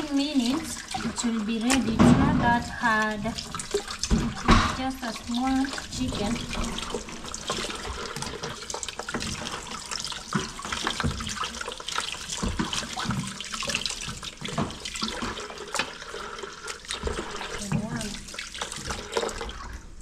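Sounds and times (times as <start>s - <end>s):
tap running into sink: 0.0s - 16.0s
splashes and knocks: 0.0s - 19.8s.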